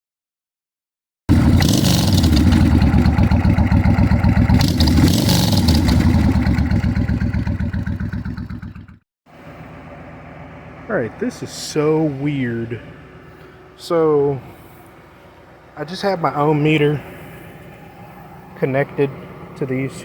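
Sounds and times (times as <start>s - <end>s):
motorcycle engine revving: 1.3s - 9.0s.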